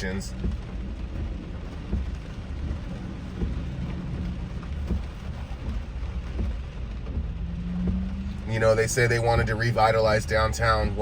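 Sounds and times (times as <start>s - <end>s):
car driving rumble: 0.0s - 11.0s
heavy rain on a car: 0.0s - 11.0s
soft knocks: 0.4s - 8.2s.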